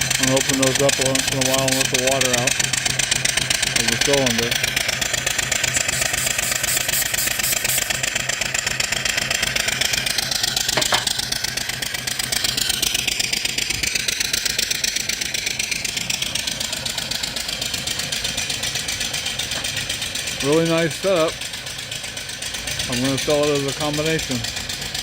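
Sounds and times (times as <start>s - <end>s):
steam engine running: 0.0s - 25.0s
steam hissing: 3.4s - 8.8s.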